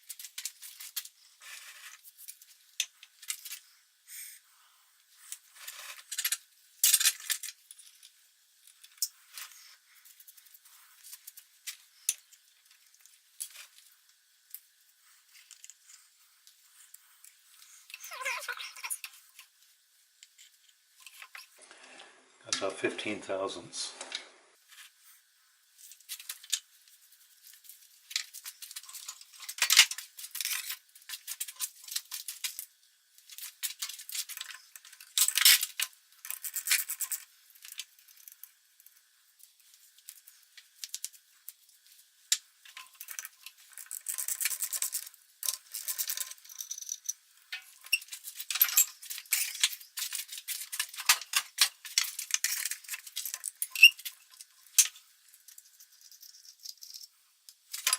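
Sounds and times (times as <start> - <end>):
metal parts and tools rattling: 28.0 - 32.6, 42.6 - 57.1, 57.7 - 57.9.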